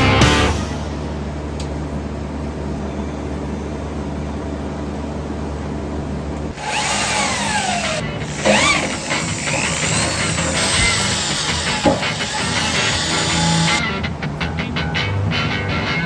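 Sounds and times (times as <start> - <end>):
power tool running: 6.5 - 13.8.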